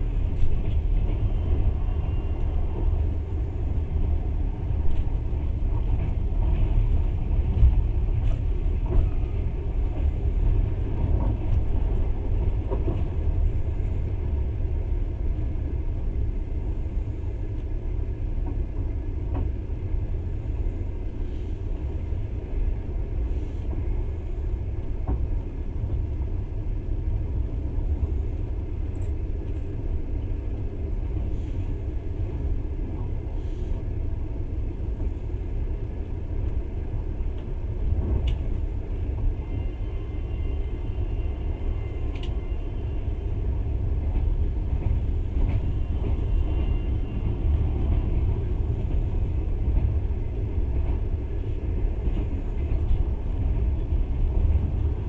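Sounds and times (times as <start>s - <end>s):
train rumble from on board: 0.0s - 55.0s
faint clicks: 42.1s - 42.4s.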